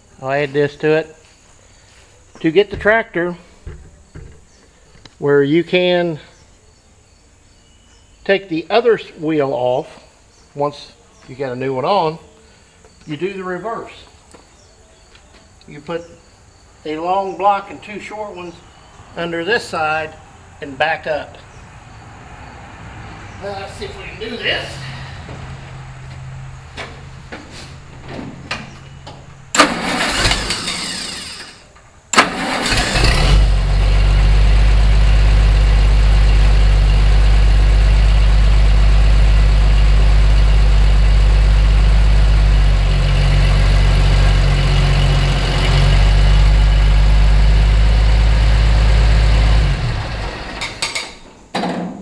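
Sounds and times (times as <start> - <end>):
tractor engine running: 2.3 - 5.8, 23.4 - 51.1
engine cranking: 28.5 - 34.4.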